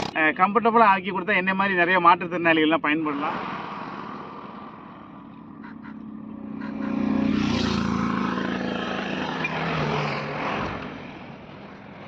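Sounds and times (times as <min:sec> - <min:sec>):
air and sand noise: 0:02.3 - 0:09.3
small atv engine running: 0:06.6 - 0:09.4.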